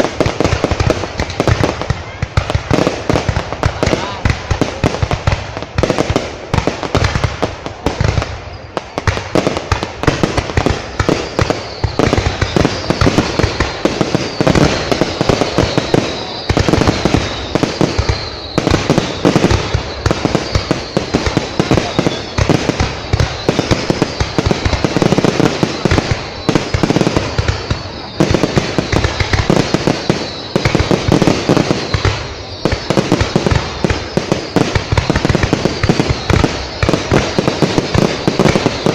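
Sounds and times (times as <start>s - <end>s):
fireworks bangs and crackles: 0.0s - 38.9s
thin high whistle: 15.6s - 22.4s.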